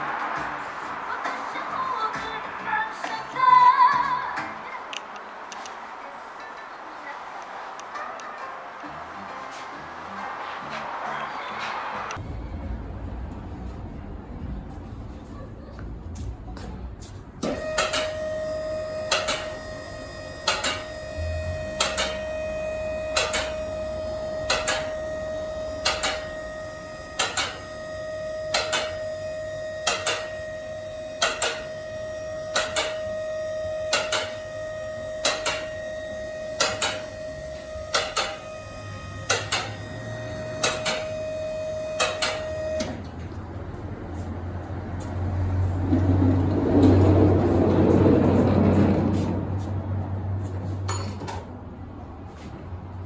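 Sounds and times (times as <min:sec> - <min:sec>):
high-pitched tone: 0:17.4 - 0:43.2
sharp mechanical clicks: 0:27.2 - 0:27.7, 0:39.3 - 0:39.8.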